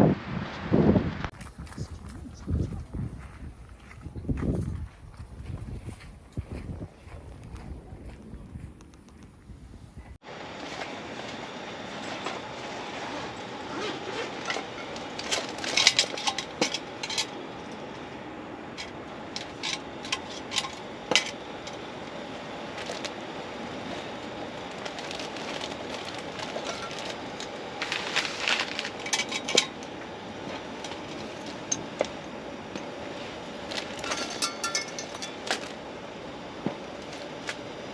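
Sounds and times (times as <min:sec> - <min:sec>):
dishes and cookware clinking: 0:34.0 - 0:35.4.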